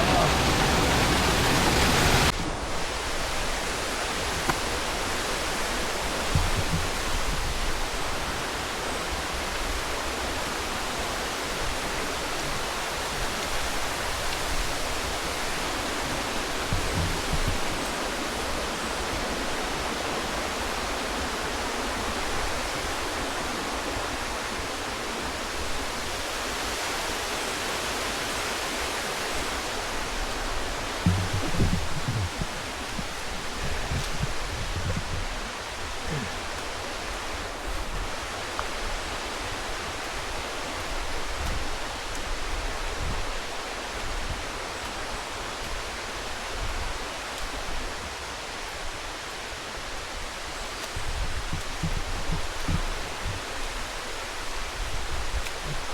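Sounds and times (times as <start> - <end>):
rushing water: 0.0 - 55.9
soft low thumps: 30.4 - 36.8.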